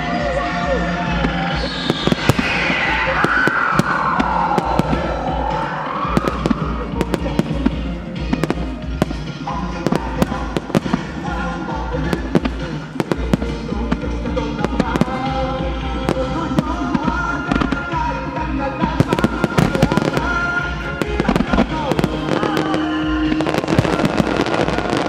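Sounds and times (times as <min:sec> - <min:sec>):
music with sustained tones: 0:00.0 - 0:25.0
firework shells bursting: 0:01.2 - 0:18.0.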